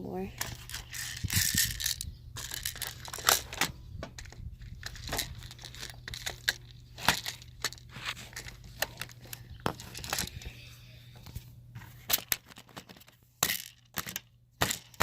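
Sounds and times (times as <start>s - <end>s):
crinkly rustling: 0.4s - 3.6s, 4.2s - 10.6s.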